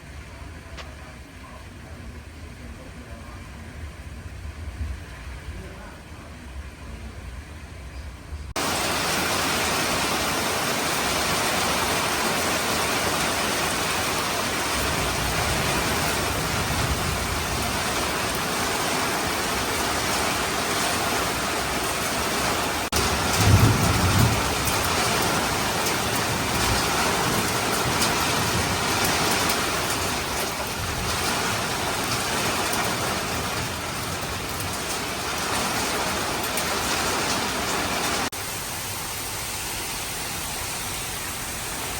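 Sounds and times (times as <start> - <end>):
low rumble of thunder: 6.9 - 38.1
heavy rain pouring: 8.5 - 41.9.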